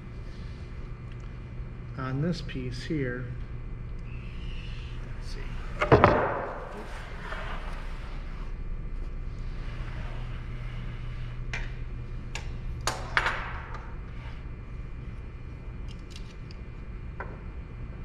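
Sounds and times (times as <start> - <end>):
low hum of shop machinery: 0.0 - 18.0
clicks and knocks of wood: 5.8 - 6.9.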